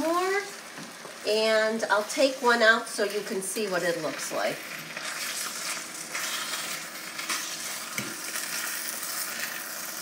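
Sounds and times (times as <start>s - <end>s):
chicken sizzling in sauce: 0.0s - 10.0s.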